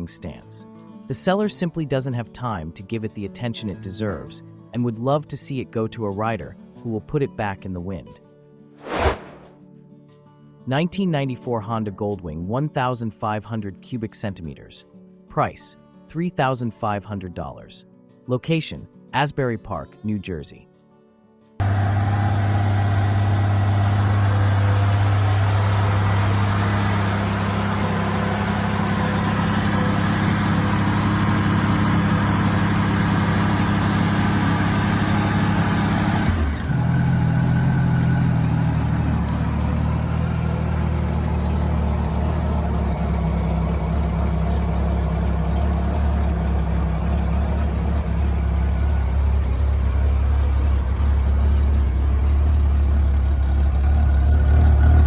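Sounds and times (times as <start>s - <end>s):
motorcycle engine running: 21.6s - 55.0s.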